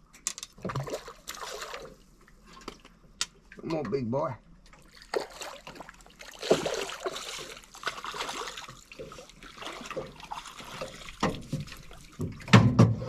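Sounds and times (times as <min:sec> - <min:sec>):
fish thrashing at water surface: 0:00.6 - 0:02.0, 0:04.7 - 0:12.6
water splashing and trickling: 0:00.6 - 0:12.8.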